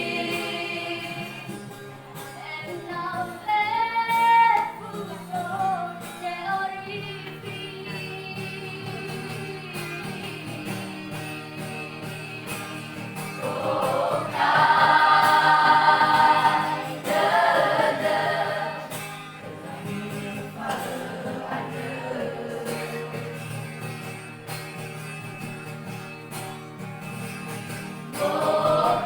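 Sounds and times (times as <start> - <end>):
vocal group singing gospel: 0.0 - 1.7, 12.9 - 23.9, 28.1 - 29.0.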